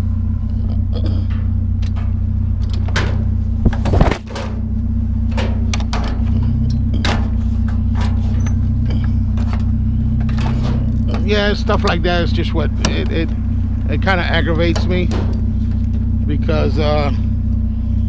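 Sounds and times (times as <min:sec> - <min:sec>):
vehicle engine idling: 0:00.0 - 0:18.0
clicks and knocks of objects: 0:00.6 - 0:04.6.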